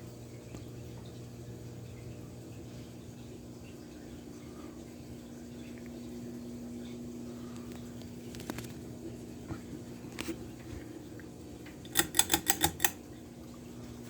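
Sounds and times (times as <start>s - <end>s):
ceiling fan motor humming: 0.0s - 14.0s
sharp clicks: 11.9s - 13.0s.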